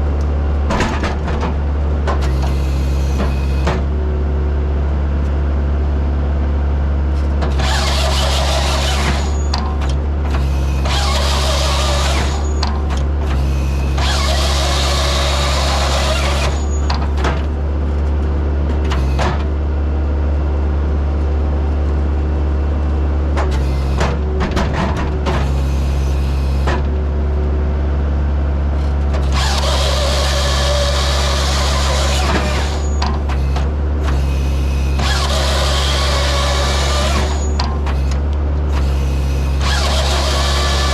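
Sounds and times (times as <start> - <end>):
diesel engine running under load: 0.0 - 40.9
saw cutting through logs: 7.4 - 17.3, 23.5 - 24.4, 25.3 - 26.8, 28.8 - 40.9.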